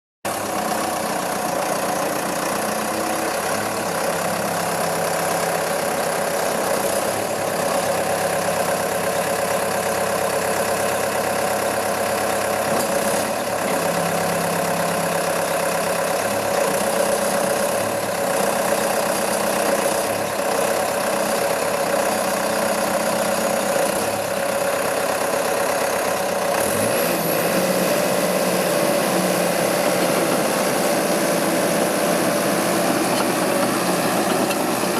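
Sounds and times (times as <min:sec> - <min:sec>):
diesel bulldozer engine running: 0:00.3 - 0:34.9.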